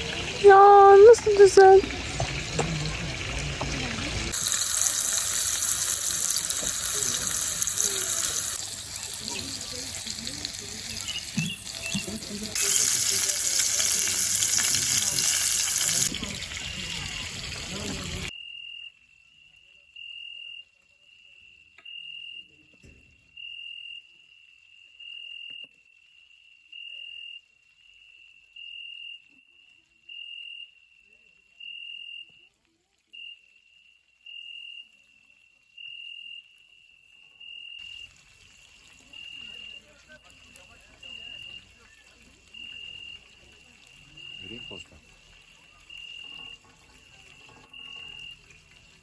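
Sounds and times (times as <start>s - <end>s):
water running: 0.0s - 18.3s, 37.9s - 49.0s
cricket trilling: 4.4s - 16.1s, 18.3s - 22.6s, 23.3s - 32.5s, 33.1s - 49.0s.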